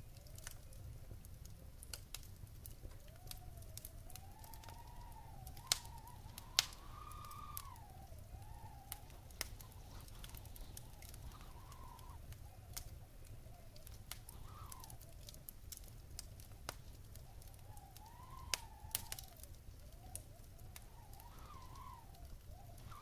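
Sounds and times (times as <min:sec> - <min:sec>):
wood fire crackling: 0:00.0 - 0:23.0
wavering whistle-like tone: 0:03.0 - 0:12.7, 0:13.4 - 0:15.0, 0:17.2 - 0:23.0.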